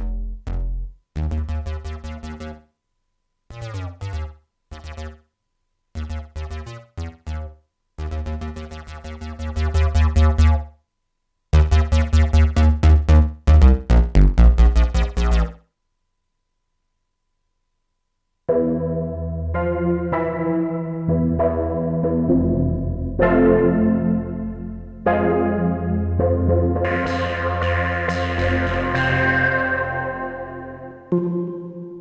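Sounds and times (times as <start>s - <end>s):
deep synth bass: 0.0s - 2.6s, 3.5s - 5.2s, 6.0s - 10.6s, 11.6s - 15.6s, 21.2s - 31.1s
synthesizer repeated notes: 0.0s - 2.6s, 3.5s - 5.3s, 6.0s - 10.7s, 11.6s - 15.6s, 18.5s - 32.0s.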